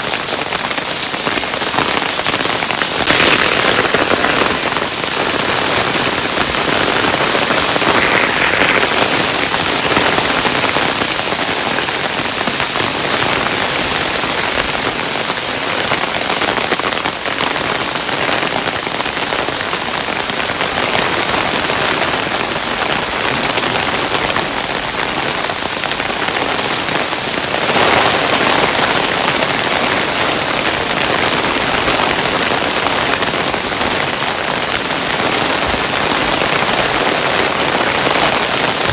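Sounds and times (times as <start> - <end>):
hailstones on hard surface: 0.0 - 38.9.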